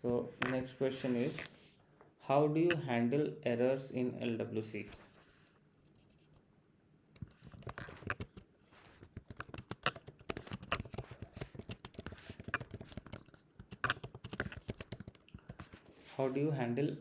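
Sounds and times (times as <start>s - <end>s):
typing on keyboard: 7.2s - 15.9s.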